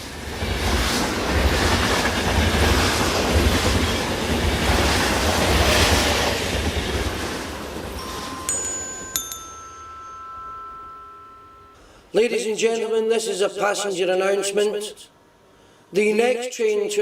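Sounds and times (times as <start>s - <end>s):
train rumbling on rails: 0.0s - 8.6s.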